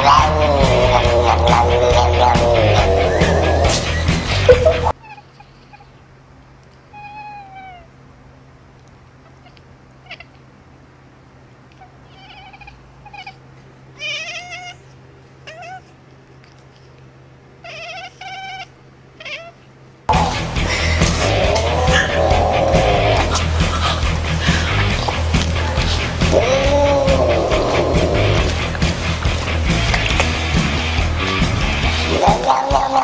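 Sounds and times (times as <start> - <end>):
faint steady hum: 0.0 - 33.0
cat meowing: 6.9 - 8.0, 9.2 - 10.5, 11.7 - 16.0, 17.6 - 19.7, 26.3 - 28.6.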